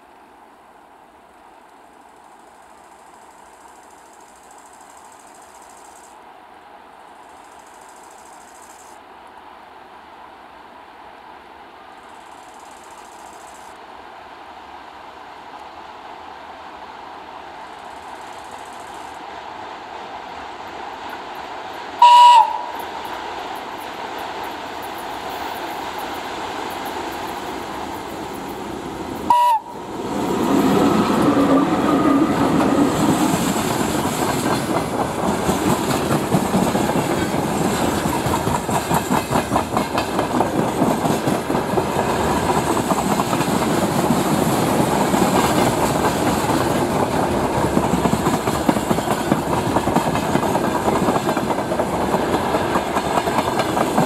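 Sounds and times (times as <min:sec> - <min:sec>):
locomotive whistle blast: 0:22.0 - 0:22.8, 0:29.3 - 0:29.8
wheels clattering over rail joints: 0:30.2 - 0:54.0.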